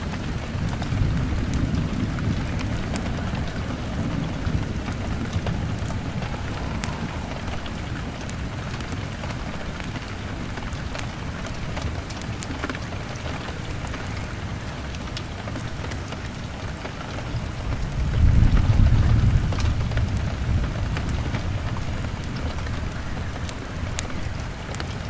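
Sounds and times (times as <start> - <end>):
low rumble: 0.0 - 10.4
fire crackling: 0.0 - 25.0
rain on a window: 0.0 - 25.0.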